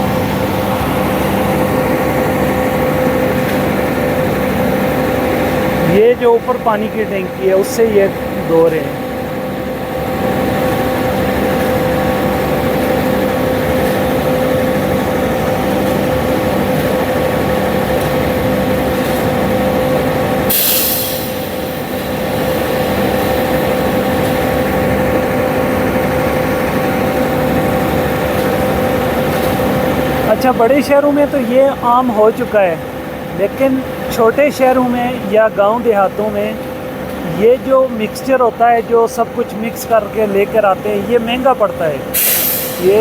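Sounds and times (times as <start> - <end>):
diesel truck engine whining: 0.0 - 43.0
sharp hiss: 20.5 - 23.5, 42.1 - 43.0.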